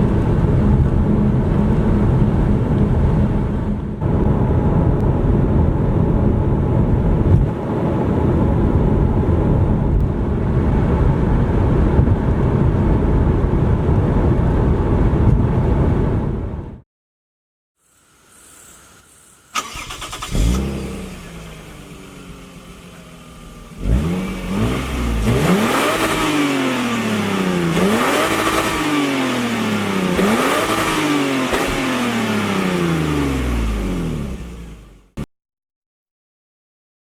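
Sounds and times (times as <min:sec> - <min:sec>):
car engine starting and revving: 0:19.6 - 0:35.2.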